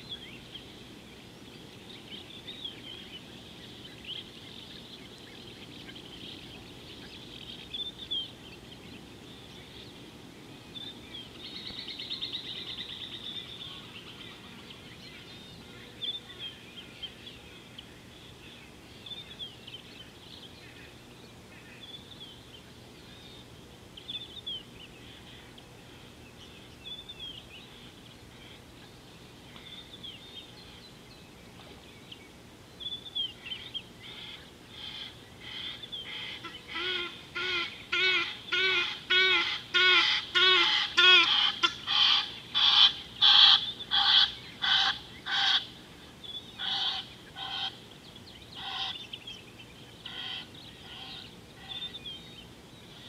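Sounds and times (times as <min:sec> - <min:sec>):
bird calling harshly: 0:34.1 - 0:45.8.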